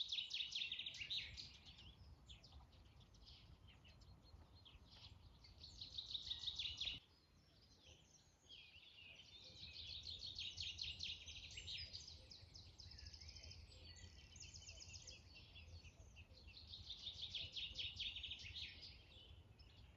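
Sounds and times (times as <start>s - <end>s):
small birds chirping and singing: 0.0s - 19.9s.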